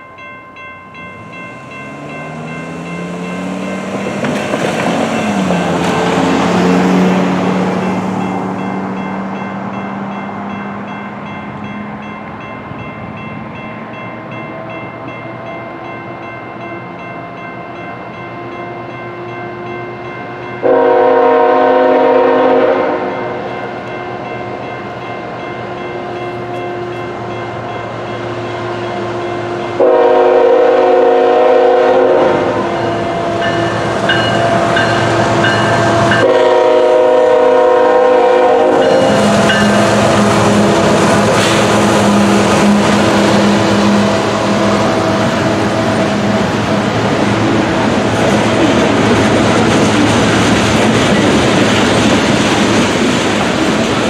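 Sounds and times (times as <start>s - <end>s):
electronic crossing bell ringing: 0.0s - 5.8s, 32.8s - 36.3s, 38.8s - 40.0s
train low rumble: 0.0s - 54.0s
locomotive horn blasts: 20.6s - 23.5s, 29.4s - 47.0s.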